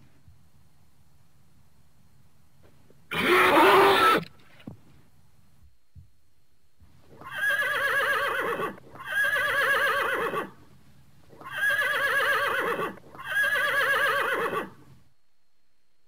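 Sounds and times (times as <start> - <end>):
horse whinnying: 3.1 - 4.3, 7.2 - 10.5, 11.4 - 14.8.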